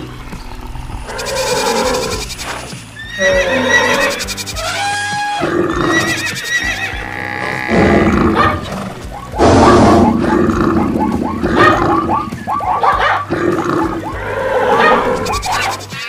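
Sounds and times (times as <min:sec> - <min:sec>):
layered animal calls: 0:01.0 - 0:16.0
short falling calls: 0:01.1 - 0:07.8.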